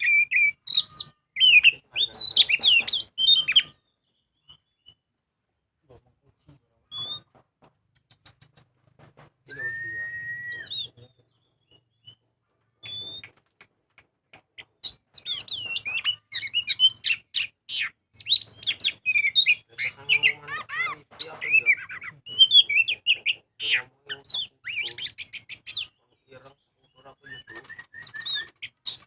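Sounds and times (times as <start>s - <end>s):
songbird whistling and singing: 0.0s - 5.1s, 6.9s - 7.3s, 9.4s - 12.2s, 12.8s - 13.4s, 14.6s - 29.0s.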